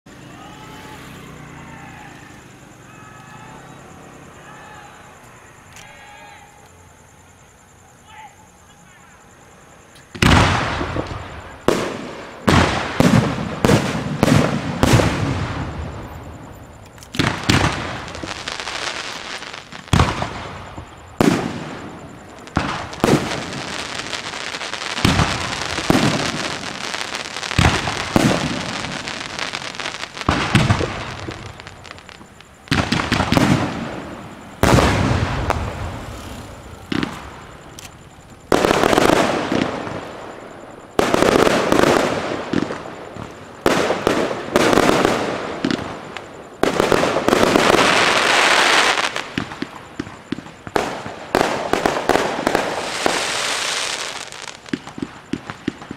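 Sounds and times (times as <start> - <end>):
firework crackling: 10.0 - 55.9
firework shells bursting: 16.7 - 55.9.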